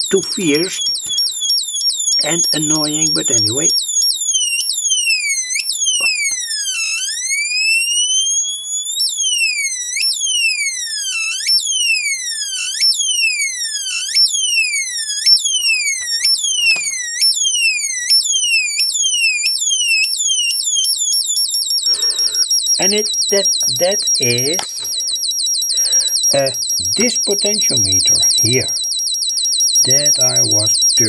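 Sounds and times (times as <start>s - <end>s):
electronic chirps falling in pitch: 21.9s - 28.8s, 29.8s - 31.0s.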